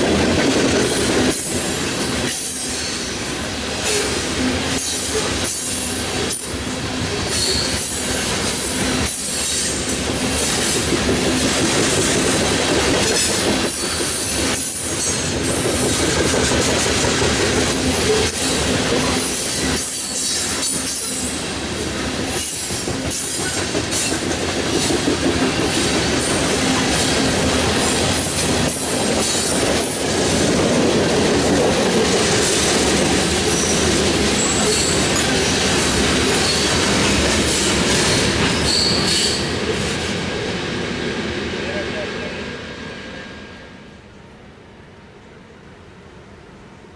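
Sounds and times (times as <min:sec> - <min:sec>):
freight train rumbling past: 0:00.0 - 0:46.9
wheels clicking over rail joints: 0:09.4 - 0:21.4.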